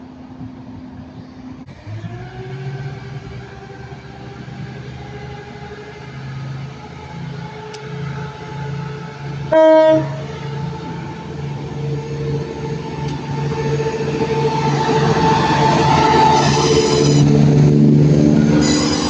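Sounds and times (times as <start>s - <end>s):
diesel train engine running: 0.0s - 19.0s
train horn blast: 9.5s - 10.4s, 18.4s - 19.0s.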